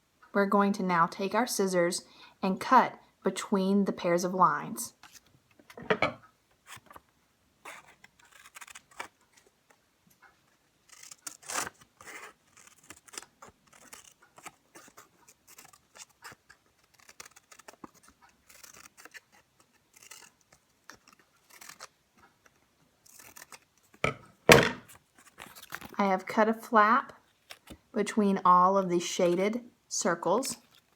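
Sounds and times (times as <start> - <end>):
scissors snipping paper: 7.6 - 9.5, 10.5 - 24.0.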